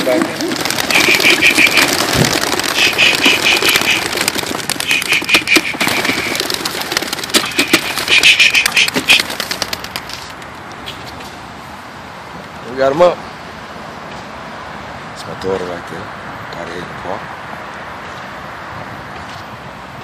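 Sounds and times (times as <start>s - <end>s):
pigeon wings flapping and clapping: 0.0s - 11.0s.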